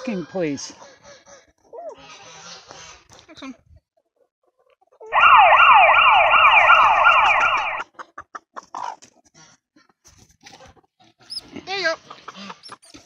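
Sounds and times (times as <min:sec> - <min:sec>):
electronic siren yelping: 0:05.1 - 0:07.8.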